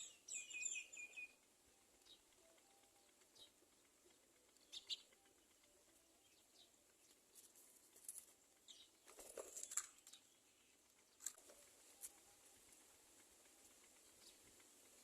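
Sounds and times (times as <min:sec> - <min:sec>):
faint bird chirps: 0:00.0 - 0:01.4, 0:02.0 - 0:03.6, 0:04.6 - 0:05.4
rustling and scratching: 0:07.0 - 0:15.0.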